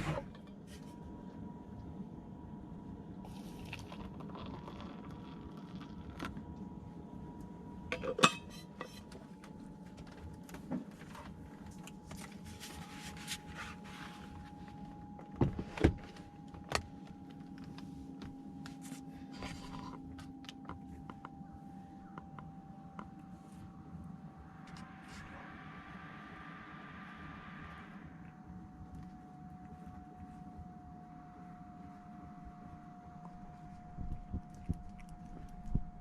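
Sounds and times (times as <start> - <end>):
steady low hum: 0.0 - 36.0
cookware clinking and rattling: 8.0 - 9.1.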